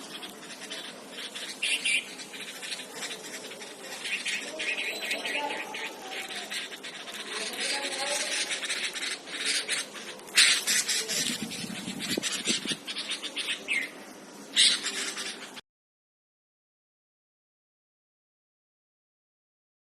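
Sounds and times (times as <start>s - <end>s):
chicks chirping rapidly: 0.0s - 13.9s.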